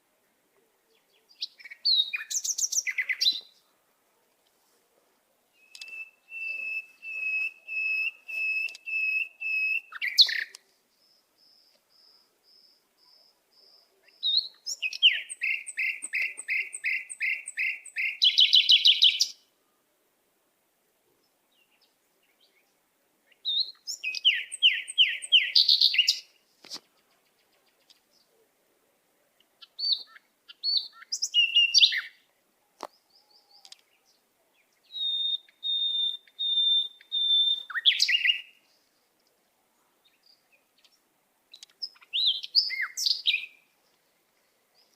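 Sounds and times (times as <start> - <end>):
bird singing high repeated notes: 5.5 - 19.4, 29.7 - 32.2, 34.8 - 38.6.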